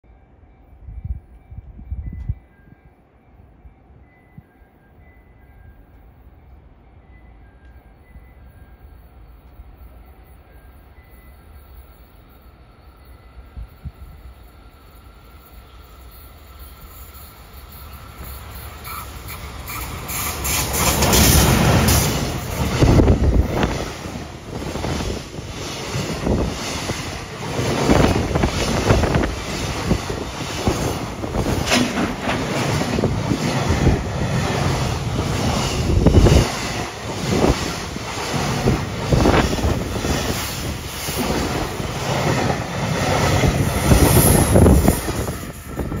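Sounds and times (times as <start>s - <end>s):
electric locomotive passing: 0.1s - 46.0s
wheels clattering over rail joints: 25.8s - 45.8s.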